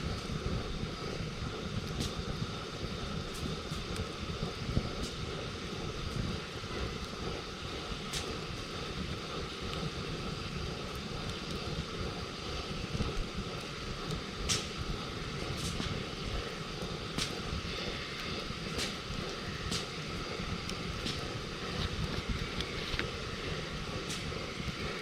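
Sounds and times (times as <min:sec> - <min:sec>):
low fire rumble: 0:00.0 - 0:25.0
campfire crackling and popping: 0:03.2 - 0:24.8.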